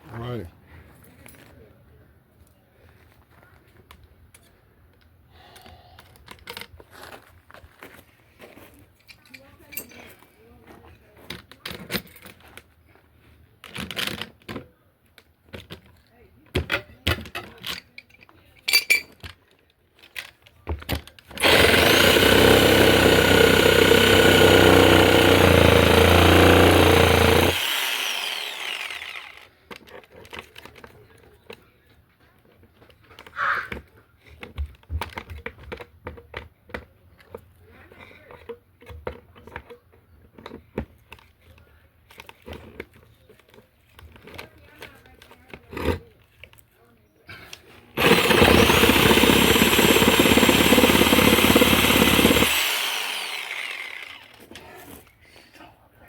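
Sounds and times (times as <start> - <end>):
power saw cutting wood: 21.4 - 29.5, 48.0 - 54.6.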